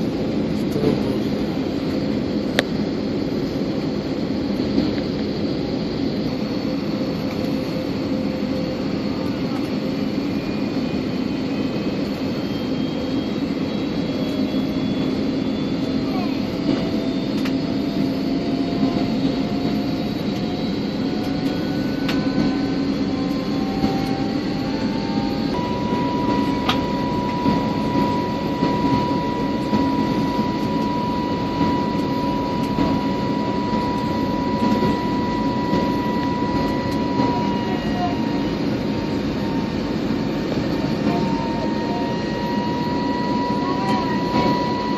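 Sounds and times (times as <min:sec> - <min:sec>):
jet airliner cabin drone: 0:00.0 - 0:44.9
thin engine whine: 0:00.0 - 0:44.9.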